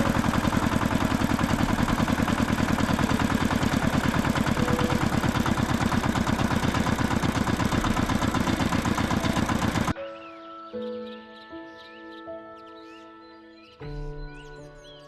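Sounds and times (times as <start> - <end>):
tractor engine idling: 0.0 - 9.9.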